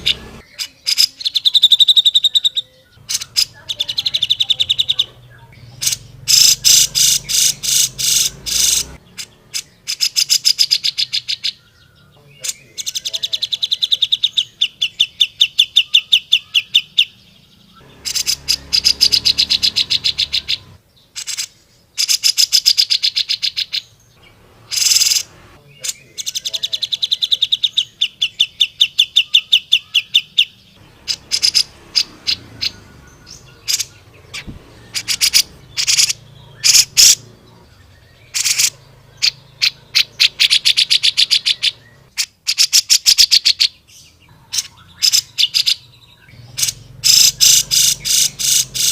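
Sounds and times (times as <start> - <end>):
bird singing rapid trills: 0.0 - 48.9.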